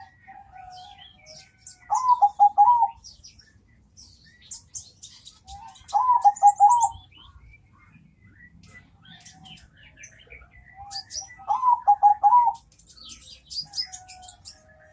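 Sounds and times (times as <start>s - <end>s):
high bird chirps: 0.7s - 14.7s
dove cooing: 1.8s - 3.0s, 5.6s - 7.0s, 10.8s - 12.6s.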